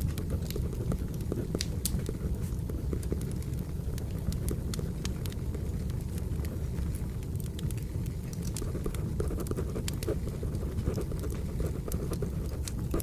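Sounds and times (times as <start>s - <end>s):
fire rumbling: 0.0s - 13.0s
pencil scratching on paper: 8.6s - 13.0s.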